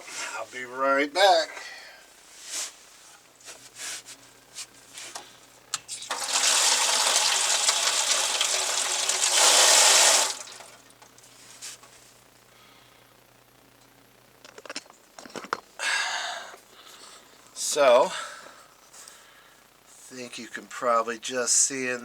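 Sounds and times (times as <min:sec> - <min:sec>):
water rushing through pipes: 0:06.0 - 0:10.8.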